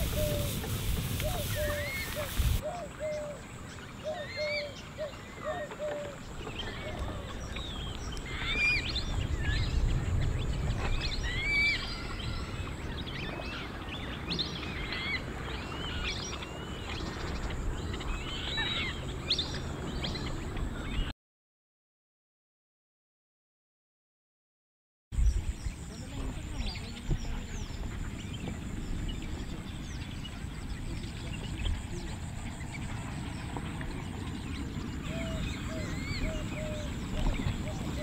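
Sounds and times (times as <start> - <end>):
lower repeated bird call: 0.0 - 3.4
birds chirping: 0.0 - 21.1, 25.2 - 38.0.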